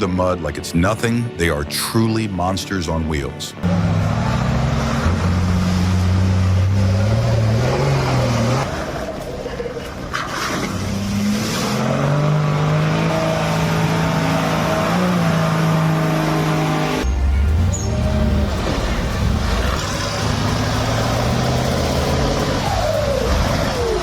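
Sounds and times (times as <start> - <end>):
heavy truck engine under load: 3.6 - 22.7.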